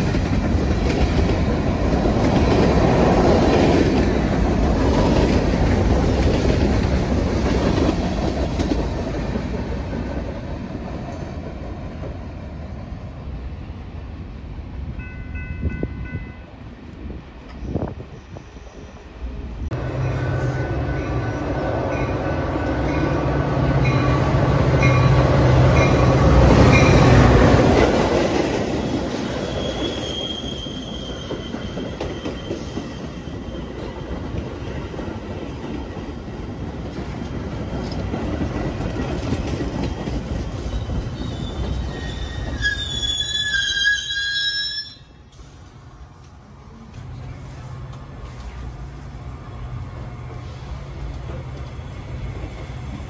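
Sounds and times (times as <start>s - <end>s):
train cars rolling: 0.0s - 14.1s, 16.8s - 53.0s
wheels squealing on rails: 28.6s - 34.4s, 40.2s - 45.5s.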